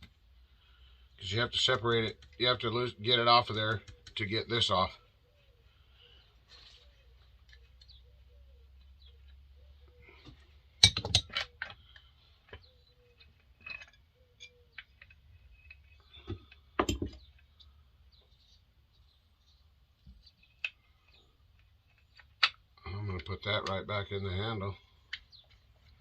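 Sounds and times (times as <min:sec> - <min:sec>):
hand tools clicking and knocking: 0:10.1 - 0:17.5.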